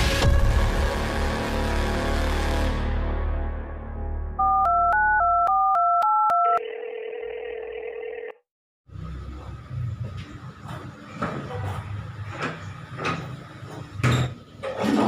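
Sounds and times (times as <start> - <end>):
telephone keypad dialing beeps: 4.4 - 6.6
steady phone tone: 4.4 - 8.4.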